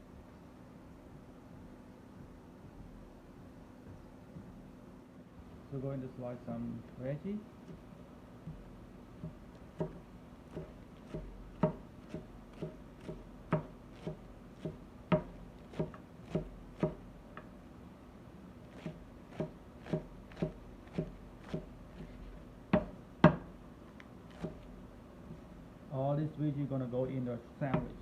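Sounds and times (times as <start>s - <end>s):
knife chopping on cutting board: 7.6s - 17.5s, 18.6s - 23.5s, 24.3s - 24.7s, 27.7s - 28.0s.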